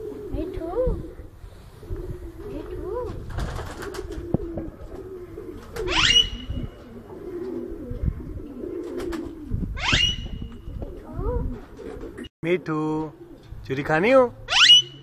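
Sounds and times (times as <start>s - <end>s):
pigeons cooing: 0.0s - 15.0s
parrot shrill calls: 5.9s - 6.5s, 9.8s - 10.2s, 14.5s - 15.0s.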